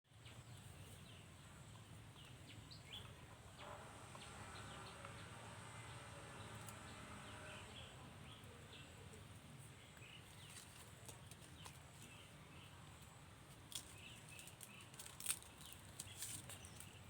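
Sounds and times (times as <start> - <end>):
small birds chirping: 0.1 - 17.0.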